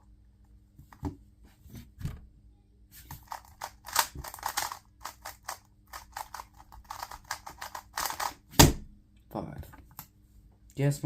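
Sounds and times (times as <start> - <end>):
puzzle cube clicking: 3.2 - 8.4.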